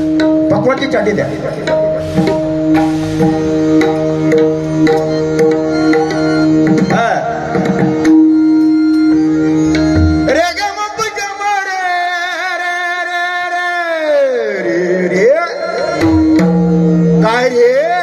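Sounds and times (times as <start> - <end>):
drum rhythmic pattern: 0.0 - 11.0
harmonium held notes: 0.0 - 18.0.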